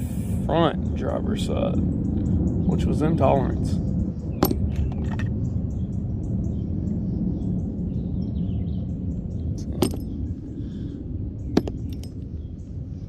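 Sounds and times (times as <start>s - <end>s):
low background rumble: 0.0s - 13.0s
metallic clinks: 4.4s - 5.3s, 9.6s - 10.2s, 11.5s - 12.3s.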